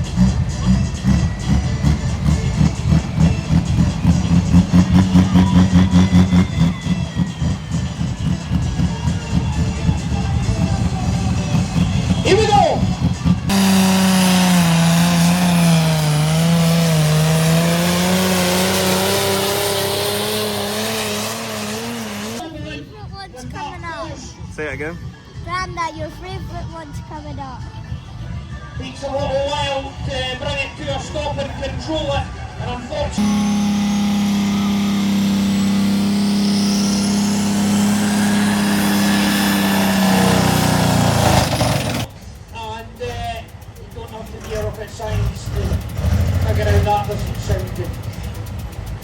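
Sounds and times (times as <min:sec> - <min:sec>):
tractor engine at high revs: 0:00.0 - 0:22.4, 0:33.1 - 0:49.0.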